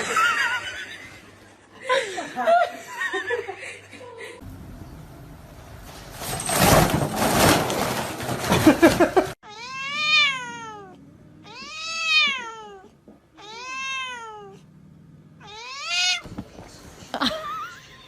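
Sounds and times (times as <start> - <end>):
cat meowing: 9.4 - 14.6, 15.4 - 16.3.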